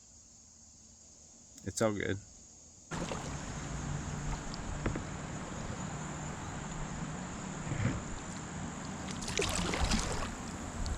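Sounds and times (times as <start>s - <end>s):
high insect drone: 0.0s - 10.9s
kayak paddle splashing: 2.9s - 10.9s.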